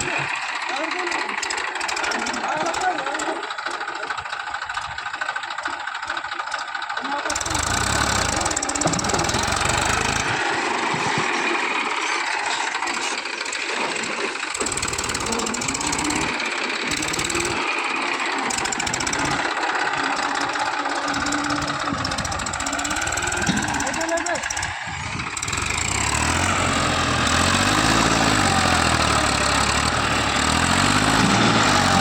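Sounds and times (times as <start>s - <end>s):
tractor diesel engine rumbling: 0.0s - 32.0s.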